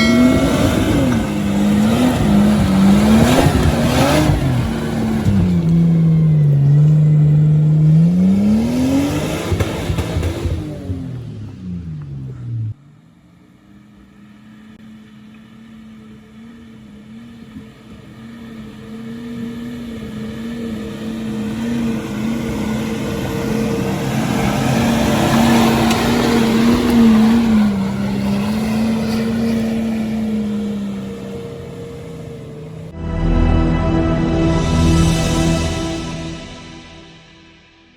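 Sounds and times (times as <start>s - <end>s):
off-road vehicle engine passing: 0.0s - 13.0s, 16.0s - 33.1s.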